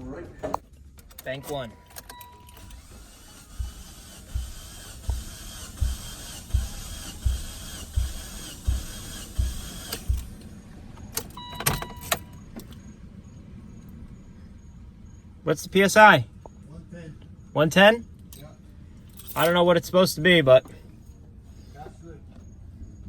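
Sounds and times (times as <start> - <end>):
engine starter cranking: 0.8 - 12.9
short beeps: 1.2 - 4.5, 11.4 - 13.0.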